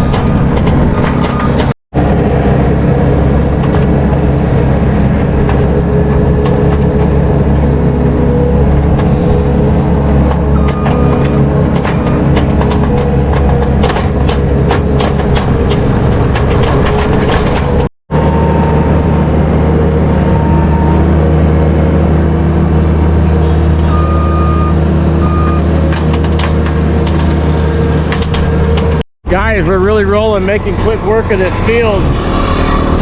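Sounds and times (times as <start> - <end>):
heavy machinery engine drone: 0.0 - 33.0
rapid clattering clicks: 10.2 - 17.9
short beeps: 20.4 - 21.0, 23.9 - 25.6.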